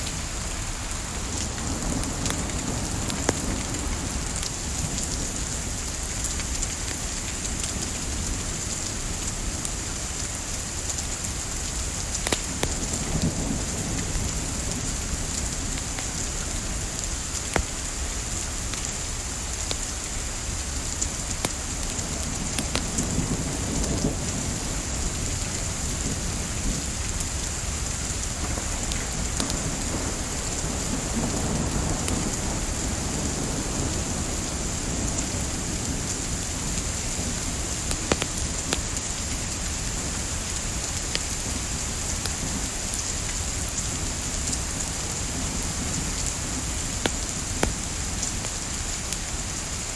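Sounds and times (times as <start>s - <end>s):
rain hiss: 0.0s - 49.9s
wood fire crackling: 10.8s - 13.3s, 14.7s - 25.5s, 35.2s - 49.9s.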